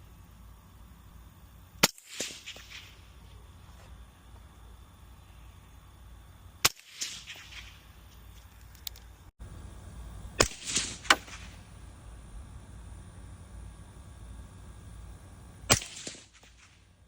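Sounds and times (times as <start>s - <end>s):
suppressed rifle shots: 10.4s - 11.6s, 15.7s - 16.8s.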